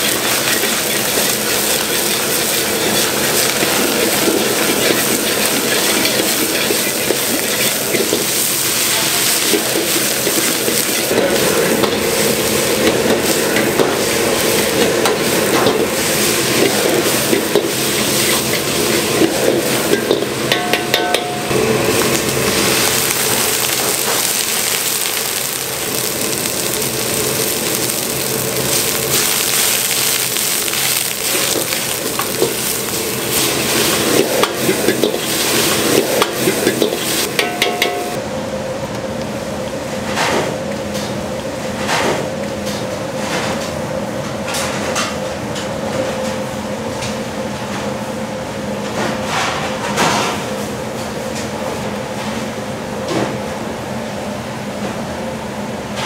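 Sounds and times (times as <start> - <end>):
food frying and sizzling: 0.0 - 38.2.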